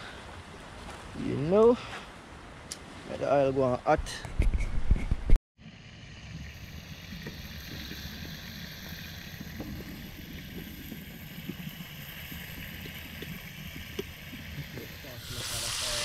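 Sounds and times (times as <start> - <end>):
wind rumble on microphone: 4.2 - 5.4
chicken sizzling in hot oil: 5.7 - 16.0.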